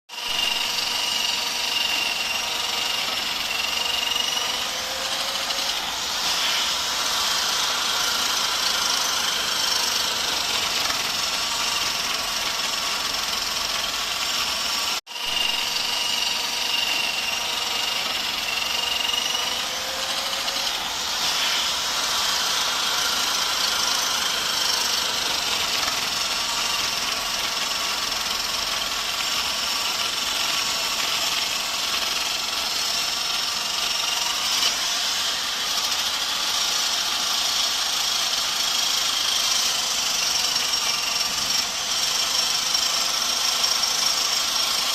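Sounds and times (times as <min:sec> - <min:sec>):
motor running with whine: 0:00.3 - 0:29.4.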